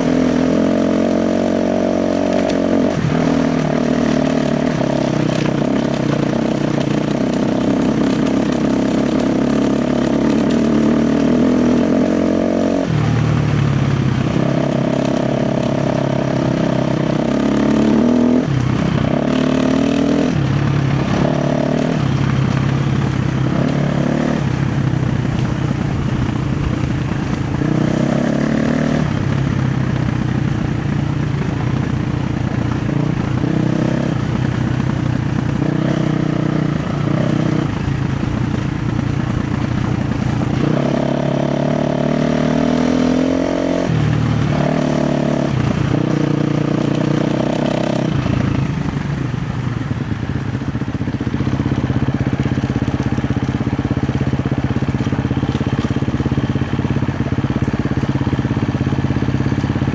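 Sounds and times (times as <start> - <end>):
dirt bike engine revving: 0.0 - 49.1.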